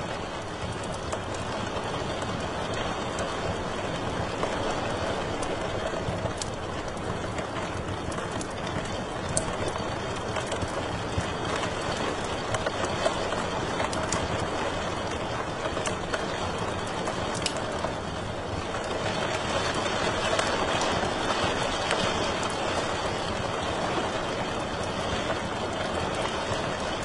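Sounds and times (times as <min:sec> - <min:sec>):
wood fire crackling: 0:00.0 - 0:27.0
fire pops and snaps: 0:00.1 - 0:27.0.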